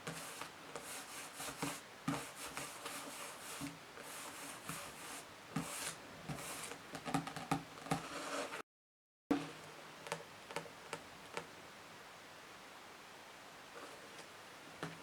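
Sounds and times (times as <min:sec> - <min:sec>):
fingernails scratching on books: 0:08.0 - 0:08.6.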